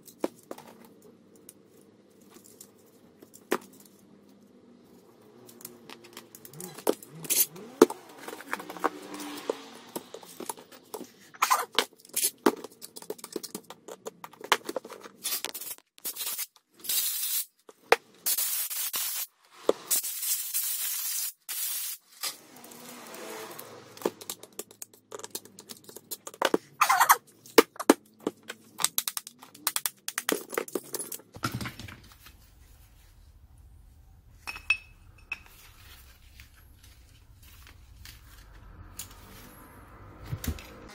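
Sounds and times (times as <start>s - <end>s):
metal parts and tools clinking: 0.0s - 17.5s, 23.5s - 32.4s, 34.4s - 39.6s.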